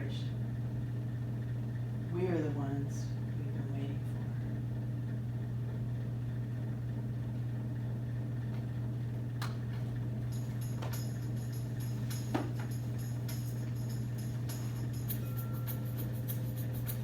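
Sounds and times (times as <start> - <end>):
steady low drone: 10.2 - 17.0
small metal bells jingling: 10.3 - 17.0.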